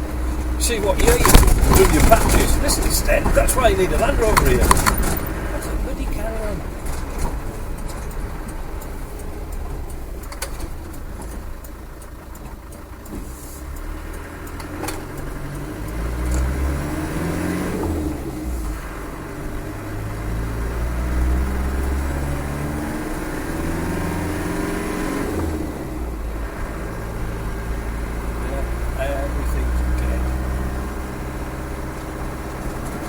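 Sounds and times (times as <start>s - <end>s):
diesel engine accelerating: 0.0s - 33.0s
low road rumble: 0.0s - 33.0s.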